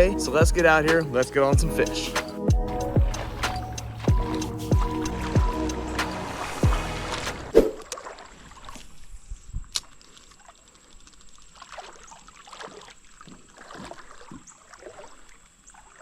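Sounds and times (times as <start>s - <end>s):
creek water splashing: 0.0s - 16.0s.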